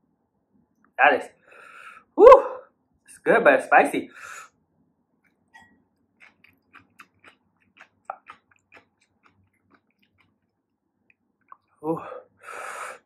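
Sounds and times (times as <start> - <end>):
person chewing noodles: 5.2 - 11.8.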